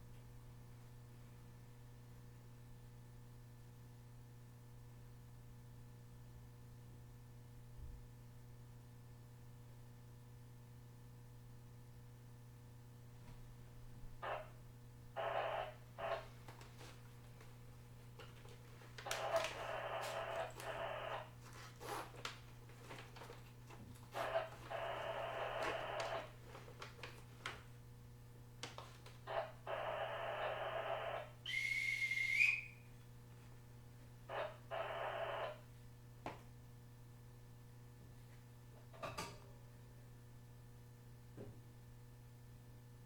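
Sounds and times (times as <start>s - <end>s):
departure whistle: 31.4s - 32.9s.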